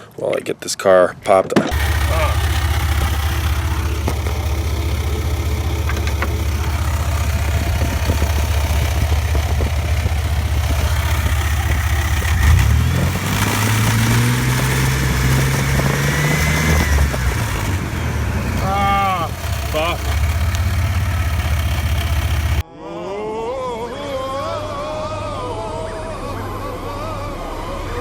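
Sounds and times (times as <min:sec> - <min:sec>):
engine ticks and knocks: 0:01.6 - 0:22.6
engine idling and revving: 0:01.7 - 0:22.6.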